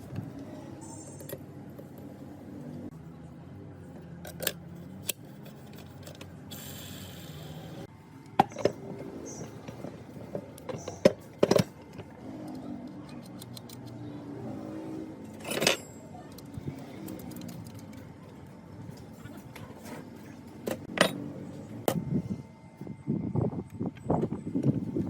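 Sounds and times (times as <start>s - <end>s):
metal parts clinking and knocking: 4.2s - 6.4s, 15.2s - 18.1s, 20.6s - 21.3s.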